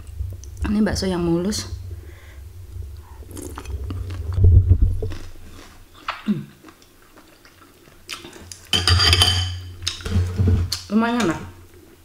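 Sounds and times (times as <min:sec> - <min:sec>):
chewing with wet squelches: 0:05.0 - 0:08.7.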